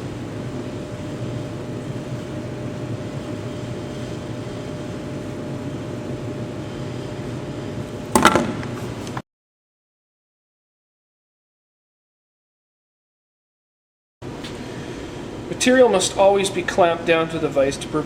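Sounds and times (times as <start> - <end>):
low mechanical hum: 0.0 - 9.2, 14.2 - 18.0.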